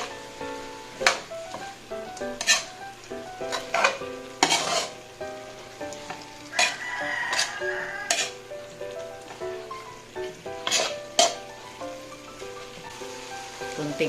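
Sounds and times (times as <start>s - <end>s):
background music: 0.0s - 14.0s
food sizzling in a pan: 0.0s - 14.0s
metal spatula scraping a pan: 2.3s - 2.8s, 3.5s - 5.0s, 6.0s - 8.5s, 10.2s - 11.5s.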